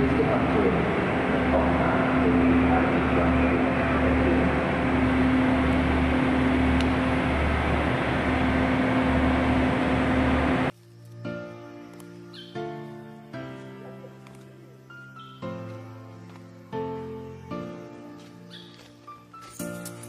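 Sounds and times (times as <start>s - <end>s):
diesel trains idling: 0.0s - 10.7s.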